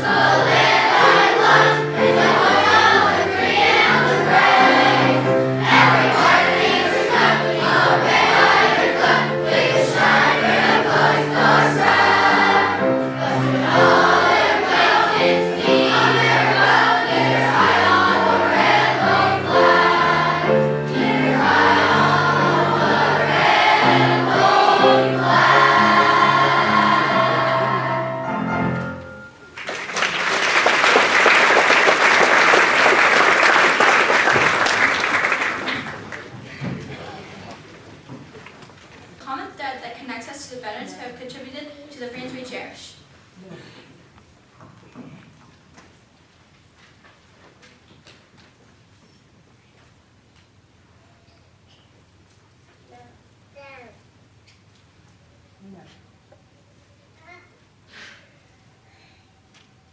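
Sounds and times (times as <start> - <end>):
children's choir singing: 0.0 - 37.8
applause: 29.6 - 36.6.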